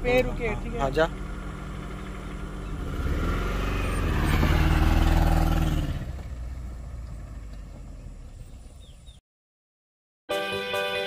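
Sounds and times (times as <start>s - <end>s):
car engine revving: 0.0s - 8.7s.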